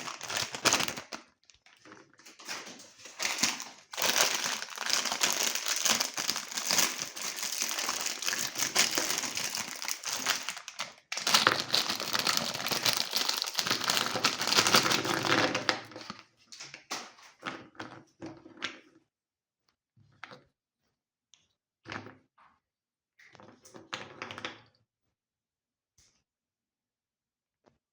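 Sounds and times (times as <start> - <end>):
meat grinder crunching cookies: 0.0 - 1.2, 3.1 - 16.1.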